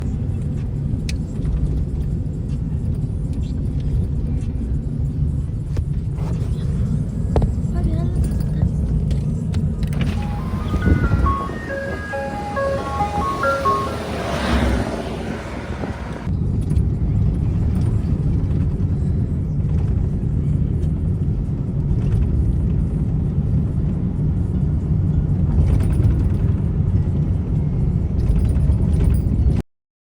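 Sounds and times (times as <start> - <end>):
ice cream truck jingle: 10.0 - 16.3.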